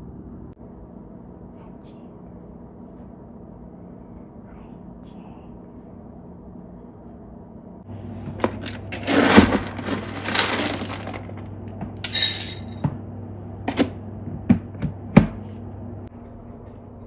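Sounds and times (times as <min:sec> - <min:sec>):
steady low hum: 0:00.0 - 0:17.0
ringing clink: 0:12.0 - 0:12.8.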